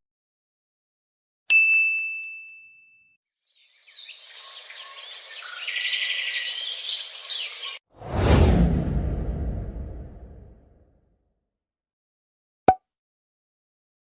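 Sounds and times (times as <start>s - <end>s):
bright bell ding: 1.5s - 3.2s
birds chirping: 3.5s - 7.8s.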